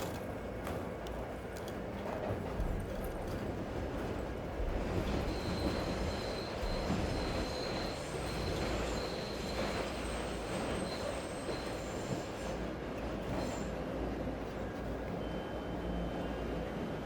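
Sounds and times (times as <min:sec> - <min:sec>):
train rumbling past: 0:00.0 - 0:17.0
high wheel squeal: 0:05.2 - 0:12.6.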